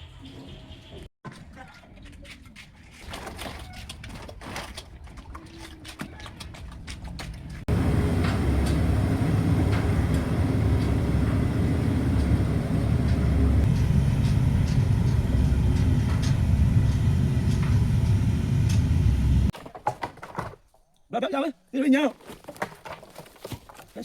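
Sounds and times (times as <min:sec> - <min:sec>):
engine and road noise rumble: 0:07.6 - 0:19.5.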